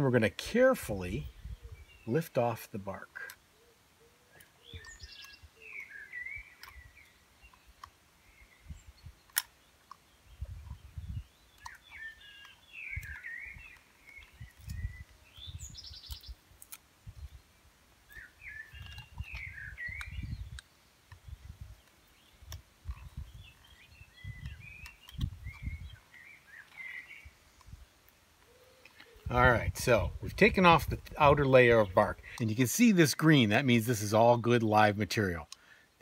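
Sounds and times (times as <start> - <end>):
songbird warbling: 2.9 - 16.4, 18.1 - 27.8, 28.4 - 30.3.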